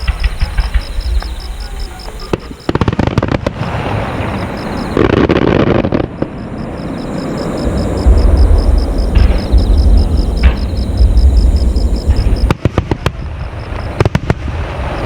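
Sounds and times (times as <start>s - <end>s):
fireworks crackling pops: 0.0s - 6.4s, 8.1s - 15.0s
fireworks burst: 0.0s - 15.0s
heavy low rumble: 7.6s - 12.5s.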